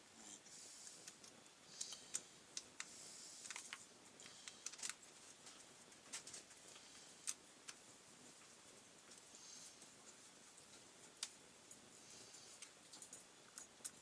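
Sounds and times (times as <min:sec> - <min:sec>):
small parts and tools clicking: 0:01.0 - 0:07.8, 0:12.6 - 0:14.0.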